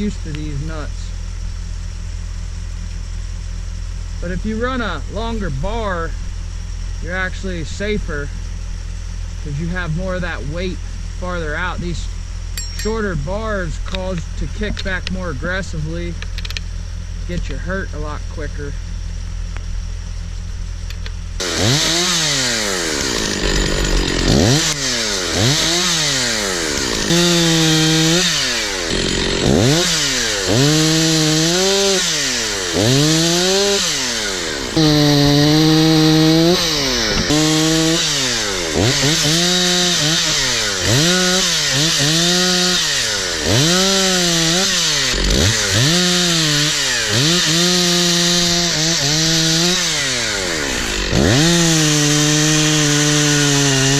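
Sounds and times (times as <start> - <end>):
chainsaw revving and cutting wood: 0.0 - 1.7, 21.4 - 53.9.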